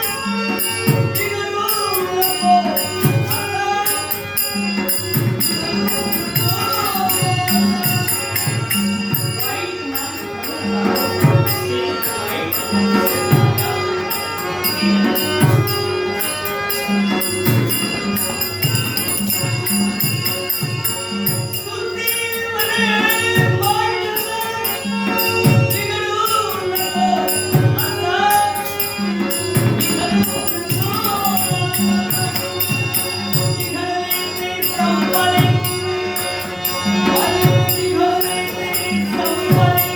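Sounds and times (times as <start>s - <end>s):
small cymbals: 0.0s - 39.9s
steady held tones: 0.0s - 39.9s
person singing: 21.5s - 39.9s.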